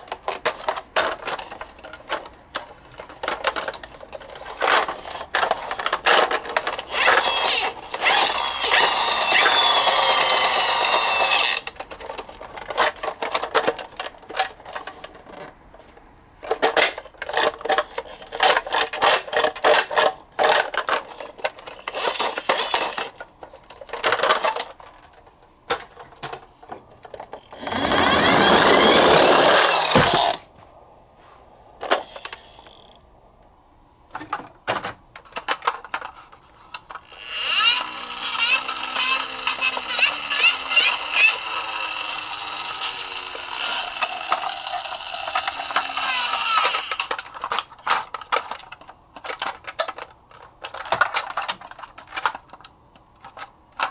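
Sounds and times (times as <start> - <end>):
small clicks knocks and rustles: 0.0 - 30.4, 34.1 - 41.5, 42.2 - 53.9
loud scratchy scraping: 6.8 - 11.7, 21.8 - 23.1, 27.6 - 30.4.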